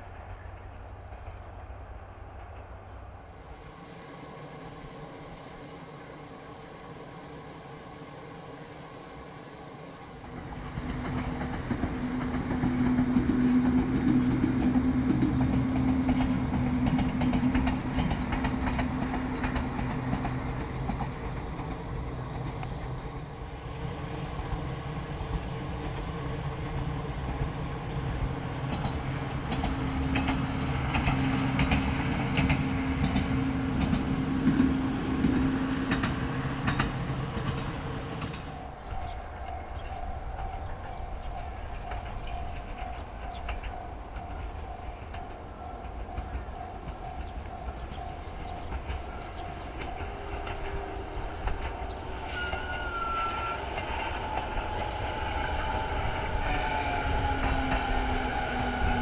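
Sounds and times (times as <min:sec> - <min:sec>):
electric train motor hum: 0:03.3 - 0:59.0
wheels clicking over rail joints: 0:10.4 - 0:23.0, 0:25.3 - 0:59.0.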